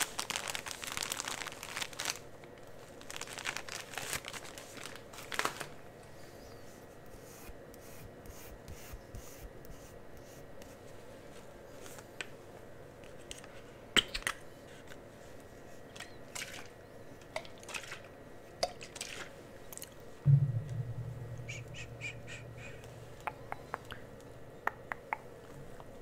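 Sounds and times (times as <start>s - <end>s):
low steady hum: 19.8s - 26.0s.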